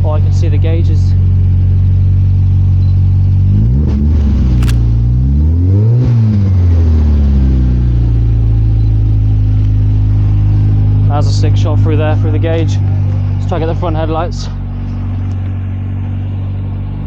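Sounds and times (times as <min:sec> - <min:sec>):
sharp click: 0:04.6 - 0:04.9.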